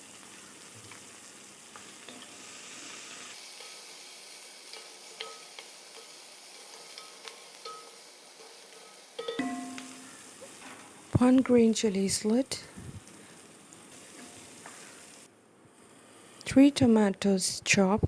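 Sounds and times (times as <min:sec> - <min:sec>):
onion sizzling in oil: 0:00.0 - 0:17.1
spoon clicking against pan: 0:04.7 - 0:10.0
spoon stirring: 0:04.7 - 0:10.1.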